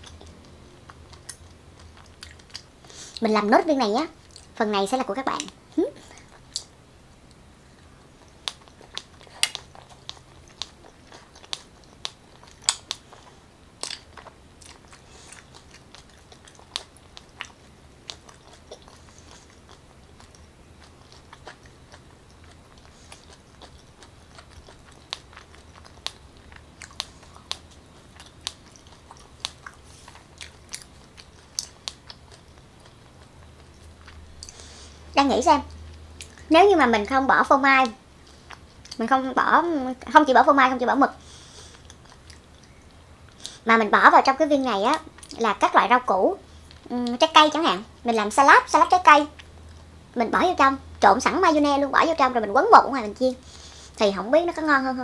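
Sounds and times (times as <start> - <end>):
wet chewing clicks and smacks: 0.0 - 3.3, 4.2 - 4.6, 5.3 - 34.7, 35.6 - 36.5, 37.8 - 39.0, 41.6 - 43.6
faint low hum: 0.0 - 55.0.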